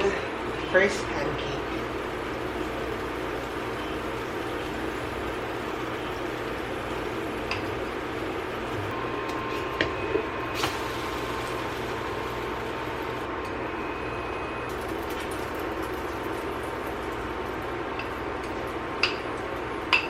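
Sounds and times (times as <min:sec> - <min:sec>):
pancake cooking in a pan: 0:01.8 - 0:08.8, 0:14.6 - 0:20.0.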